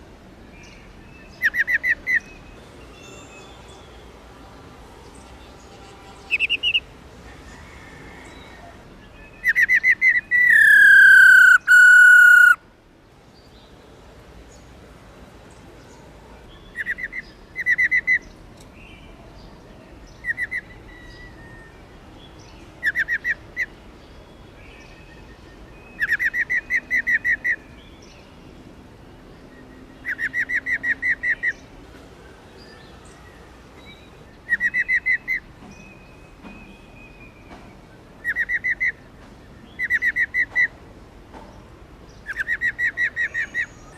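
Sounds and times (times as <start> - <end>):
bird whistle falling in pitch: 10.4 - 12.6.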